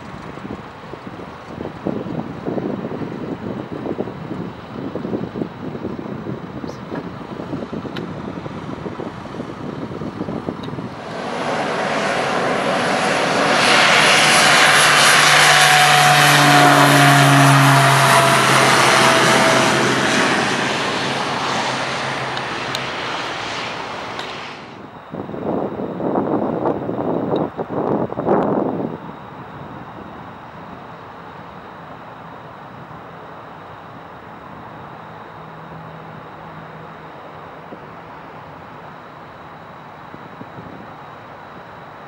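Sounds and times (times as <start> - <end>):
wind noise on microphone: 0.0 - 31.0, 40.0 - 42.0
propeller airplane droning: 0.0 - 42.0.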